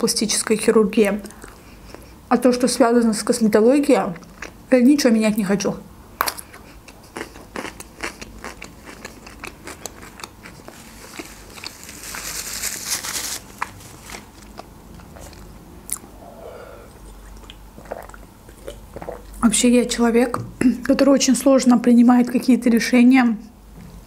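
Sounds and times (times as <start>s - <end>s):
chewing crunchy food: 1.2s - 2.2s, 4.1s - 4.6s, 6.2s - 16.1s, 16.9s - 19.4s
breathy rush of air: 16.0s - 17.4s.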